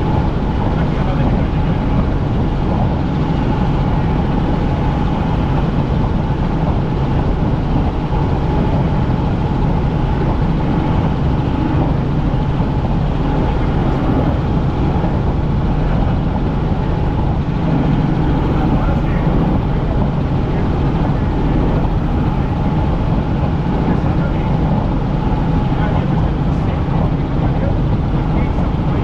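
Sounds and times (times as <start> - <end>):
helicopter engine and rotor hum: 0.0 - 29.0.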